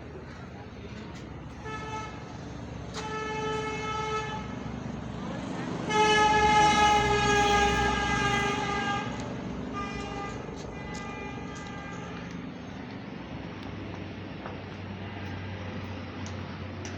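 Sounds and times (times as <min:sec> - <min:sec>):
car horn blasts: 0:01.6 - 0:02.4, 0:03.0 - 0:04.6, 0:05.9 - 0:12.4.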